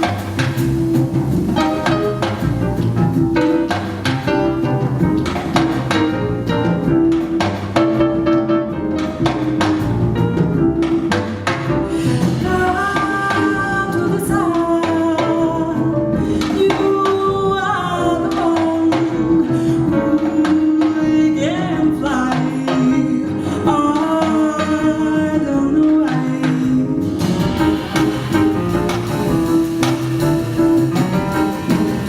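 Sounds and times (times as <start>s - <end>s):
jazz band playing: 0.0s - 32.0s
woman singing: 12.0s - 27.3s.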